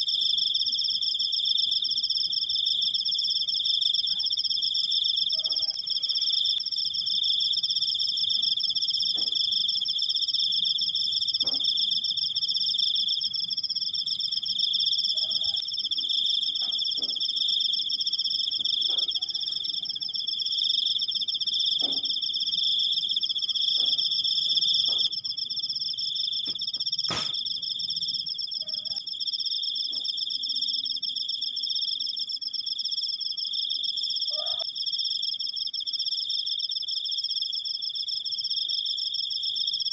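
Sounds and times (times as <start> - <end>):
crickets trilling: 0.0 - 39.9
sharp click: 26.5 - 27.4.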